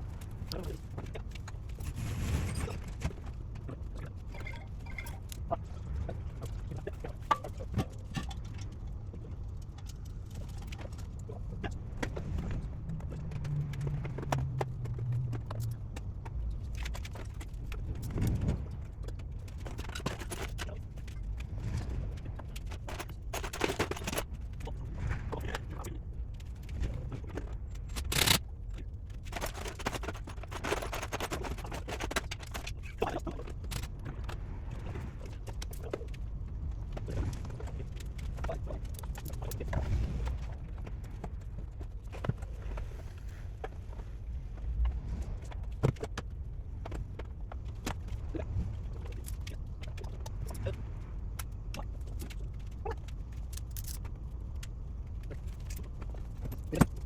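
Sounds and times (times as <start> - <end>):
low steady hum: 0.0 - 57.0
tools and parts clinking: 0.4 - 5.4, 19.1 - 21.4, 22.4 - 24.6, 27.7 - 33.9, 53.3 - 54.1.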